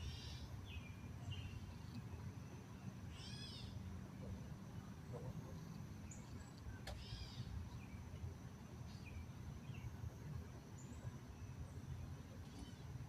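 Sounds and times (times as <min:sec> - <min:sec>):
faint bird chirps: 0:00.0 - 0:03.9, 0:04.8 - 0:08.2.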